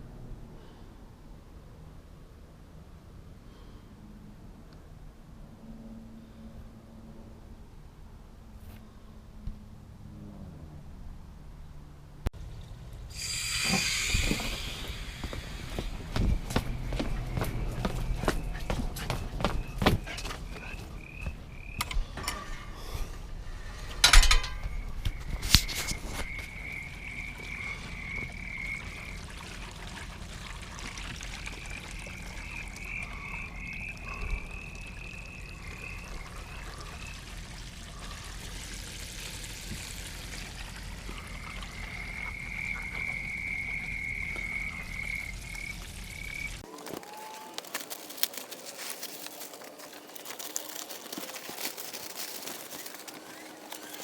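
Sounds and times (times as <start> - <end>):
animal calling in pulsed trills: 41.0 - 47.6.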